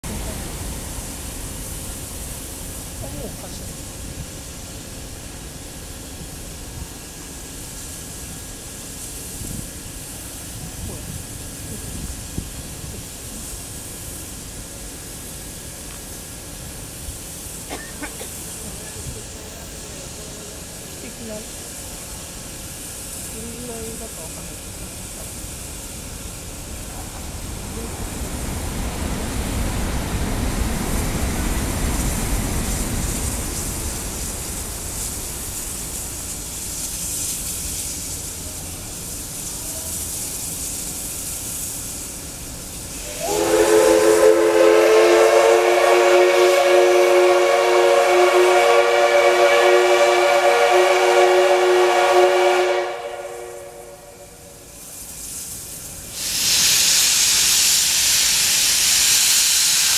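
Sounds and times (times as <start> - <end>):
steam locomotive hissing: 0.0 - 59.9
steam whistle blast: 42.9 - 54.6.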